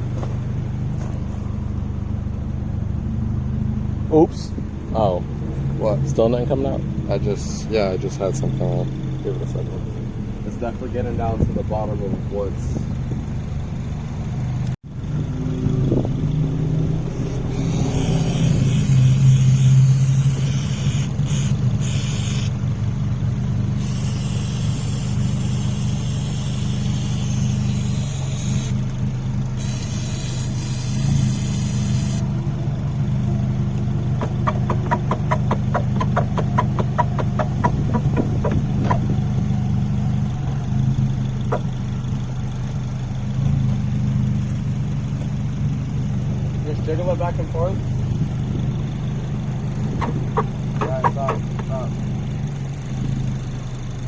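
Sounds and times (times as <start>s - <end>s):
engine idling: 0.0s - 54.0s
rapid even ticking: 34.1s - 39.4s, 41.4s - 41.8s, 49.9s - 51.9s.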